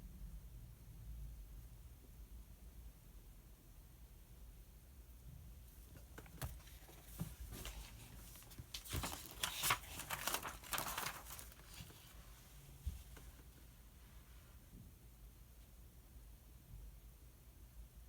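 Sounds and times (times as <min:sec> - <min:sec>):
paper pages rustling: 0:06.0 - 0:13.5.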